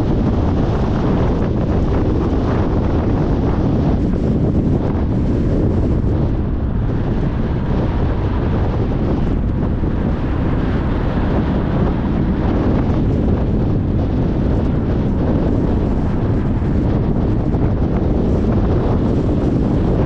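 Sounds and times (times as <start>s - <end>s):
wind noise: 0.0s - 20.0s.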